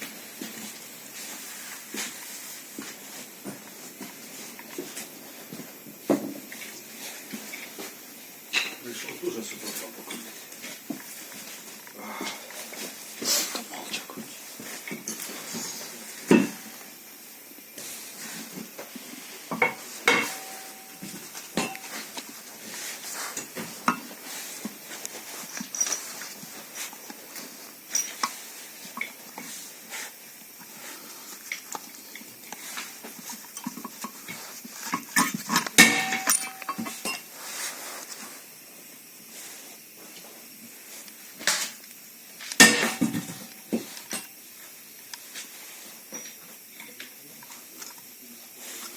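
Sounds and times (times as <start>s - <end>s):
metal tools clinking: 19.6s - 22.2s, 35.2s - 37.3s, 42.6s - 44.3s.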